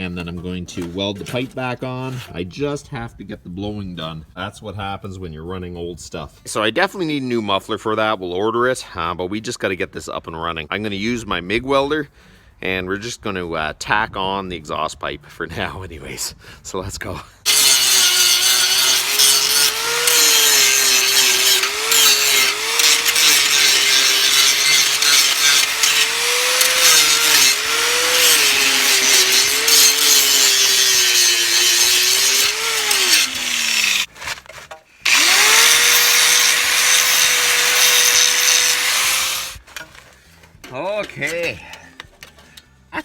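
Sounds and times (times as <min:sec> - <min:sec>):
electric grinder grinding metal: 0:17.5 - 0:34.1, 0:35.1 - 0:39.6.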